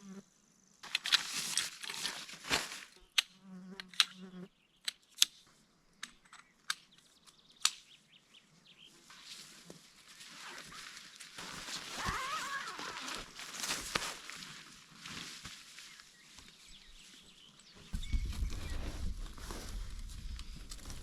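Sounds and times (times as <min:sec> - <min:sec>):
flying insect buzzing: 0:03.3 - 0:04.5, 0:11.8 - 0:13.4
sharp clicks: 0:04.8 - 0:05.4, 0:06.0 - 0:07.9.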